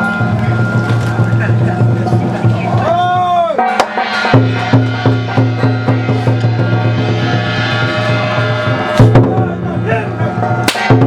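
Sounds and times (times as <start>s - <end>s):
sustained ringing tones: 0.0s - 2.7s, 4.1s - 9.0s
steady drum beat: 0.0s - 11.0s.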